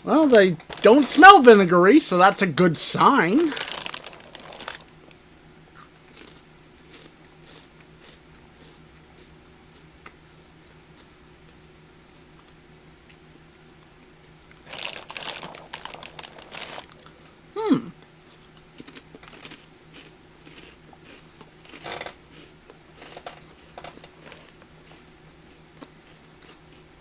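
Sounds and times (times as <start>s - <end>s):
plastic bag crinkling: 2.3s - 4.9s, 14.6s - 17.0s
crackers being chewed: 2.9s - 11.6s, 13.8s - 27.0s.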